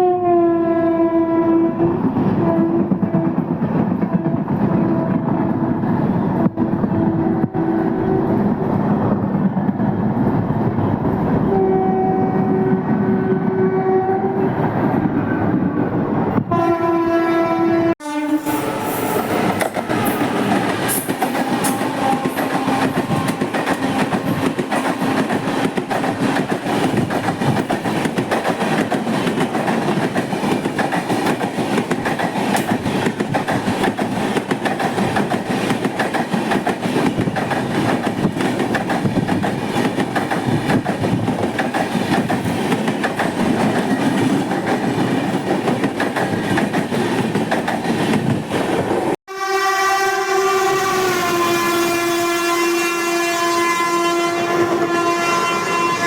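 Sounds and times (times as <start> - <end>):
locomotive horns: 0.0 - 3.4, 6.4 - 8.6, 11.4 - 14.5, 16.5 - 25.7, 49.3 - 56.0
train passing at speed: 0.0 - 56.0.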